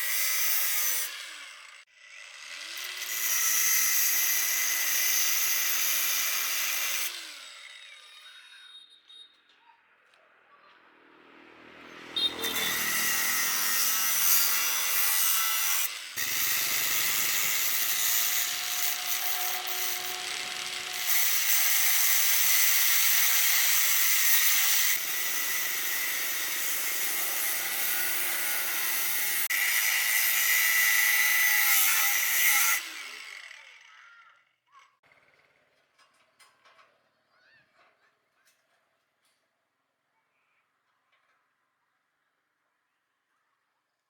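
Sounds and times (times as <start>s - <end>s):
power tool grinding: 0.0s - 8.7s, 11.4s - 34.2s.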